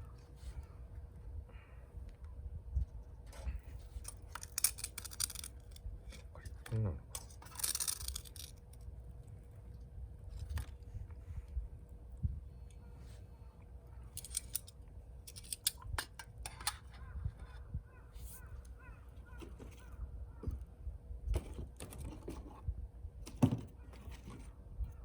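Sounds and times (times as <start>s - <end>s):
birds chirping: 16.8s - 20.6s.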